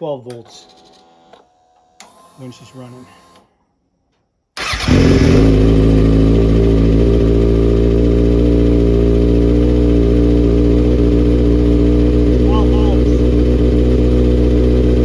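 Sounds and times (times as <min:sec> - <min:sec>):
motorcycle engine starting and idling: 0:04.6 - 0:15.0.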